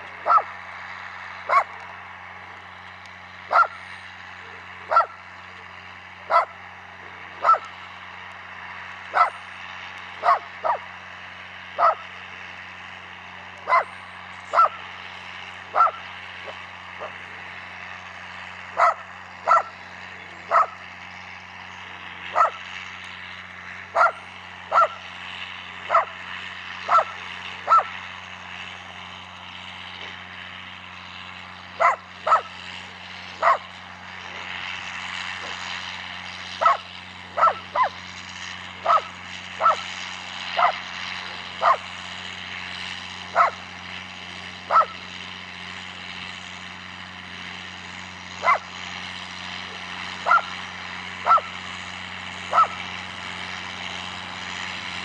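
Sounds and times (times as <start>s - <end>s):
low engine drone: 0.0s - 55.0s
dog barking: 0.3s - 0.5s, 3.5s - 3.8s, 4.9s - 5.2s, 6.3s - 6.5s, 7.4s - 7.7s, 9.2s - 9.4s, 10.2s - 10.8s, 11.8s - 12.0s, 13.7s - 13.9s, 15.8s - 16.0s, 18.8s - 19.7s, 20.5s - 20.8s, 22.4s - 22.6s, 24.0s - 25.0s, 25.9s - 26.1s, 26.9s - 27.1s, 27.7s - 27.9s, 31.8s - 32.5s, 33.4s - 33.6s, 36.6s - 36.8s, 37.4s - 38.0s, 38.8s - 39.8s, 40.6s - 40.8s, 41.6s - 41.8s, 43.4s - 43.6s, 44.7s - 45.0s, 48.4s - 48.6s, 50.2s - 50.5s, 51.3s - 51.5s, 52.5s - 52.8s.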